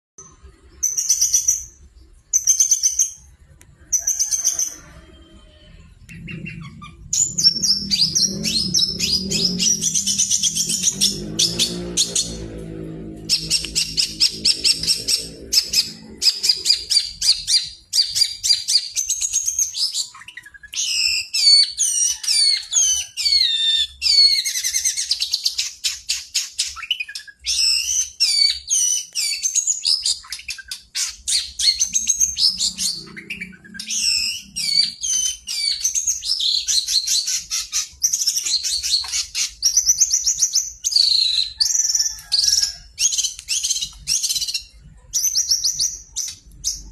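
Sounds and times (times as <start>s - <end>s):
shrike singing chattering and whistles: 0.2s - 12.4s, 13.3s - 46.9s
low hum: 4.7s - 17.5s.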